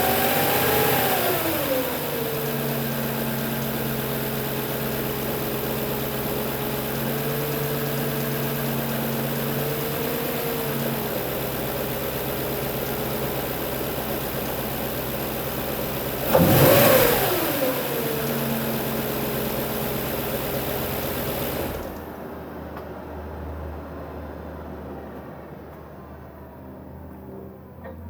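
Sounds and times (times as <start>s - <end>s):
car engine idling: 0.0s - 22.5s.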